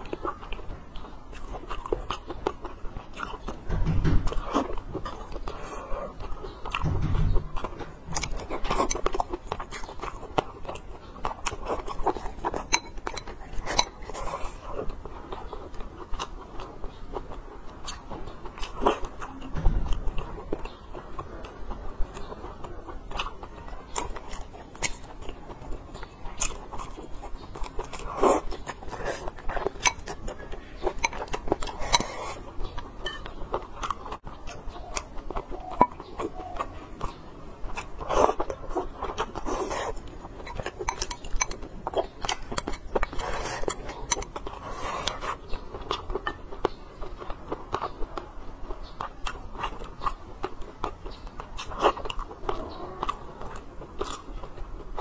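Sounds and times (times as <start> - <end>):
chewing and biting food: 0.0 - 55.0.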